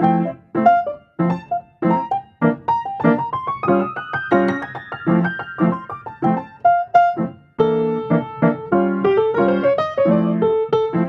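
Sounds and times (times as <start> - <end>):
piano chords and melody: 0.0 - 11.0.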